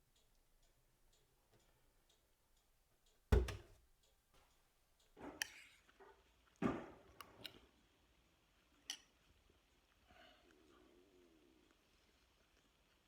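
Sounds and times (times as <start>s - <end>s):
faint ticking: 0.0s - 3.3s
heavy thumps: 3.3s - 3.8s.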